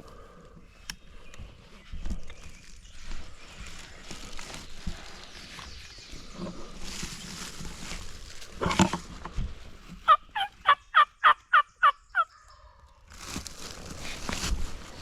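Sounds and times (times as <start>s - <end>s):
turkey yelps: 10.1s - 12.8s.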